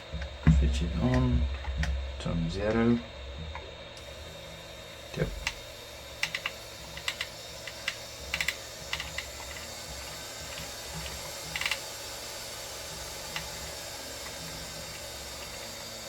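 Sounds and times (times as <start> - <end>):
faint hiss and hum: 0.0 - 16.0
sharp control clicks: 5.1 - 12.5.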